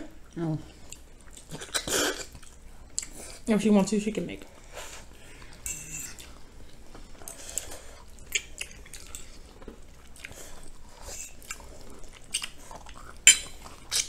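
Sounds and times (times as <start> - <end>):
chewing and mouth sounds: 0.0 - 3.5, 4.5 - 14.0
fork against a plate: 5.6 - 6.3.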